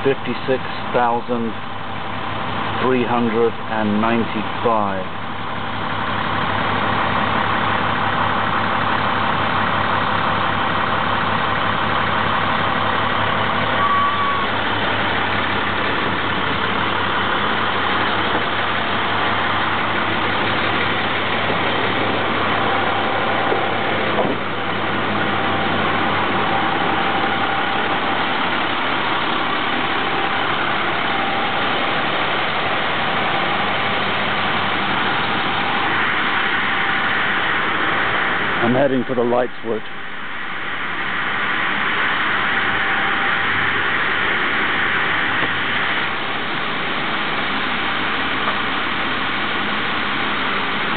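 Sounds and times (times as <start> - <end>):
diesel engine idling: 0.0 - 50.9.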